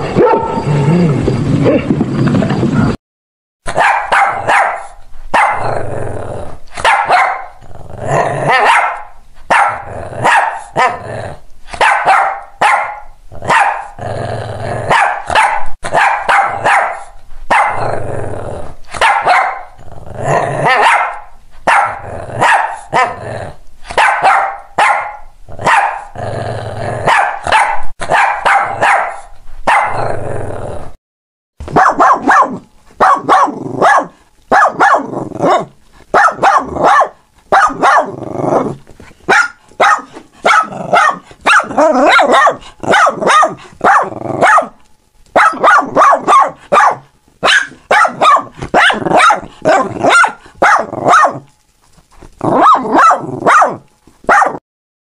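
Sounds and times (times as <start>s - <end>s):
dog barking: 0.1s - 0.7s, 3.7s - 5.7s, 6.8s - 7.6s, 8.5s - 11.0s, 11.7s - 14.0s, 14.9s - 17.8s, 19.0s - 19.8s, 20.6s - 23.2s, 23.9s - 26.1s, 27.0s - 30.0s, 31.7s - 38.2s, 39.3s - 44.8s, 45.4s - 51.5s, 52.4s - 54.6s.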